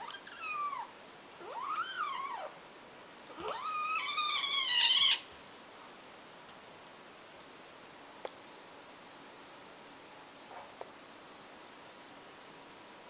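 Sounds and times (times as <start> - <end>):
cat meowing: 3.4 - 5.3.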